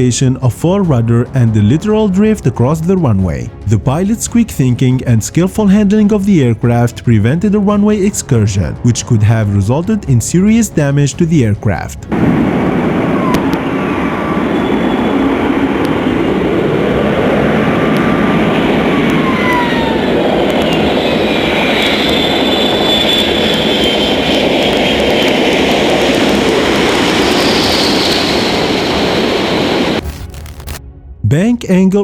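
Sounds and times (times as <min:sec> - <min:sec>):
jet engines roaring: 0:00.0 - 0:06.7, 0:12.0 - 0:30.8
turbine whine gliding downward: 0:12.1 - 0:30.8.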